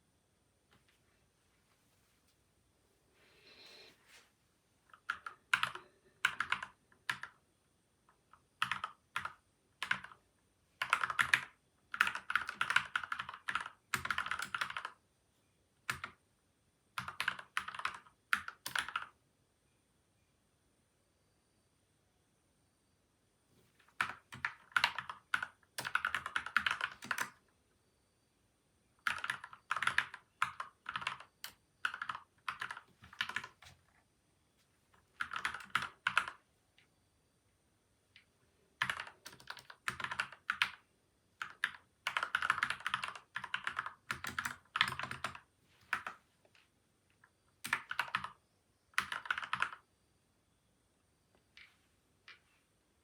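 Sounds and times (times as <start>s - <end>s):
mechanical keyboard typing: 4.9s - 7.4s, 8.1s - 10.2s, 10.8s - 15.0s, 15.8s - 16.2s, 17.0s - 19.2s, 24.0s - 27.4s, 29.0s - 33.8s, 35.1s - 36.4s, 38.8s - 40.8s, 41.4s - 46.2s, 47.6s - 49.8s.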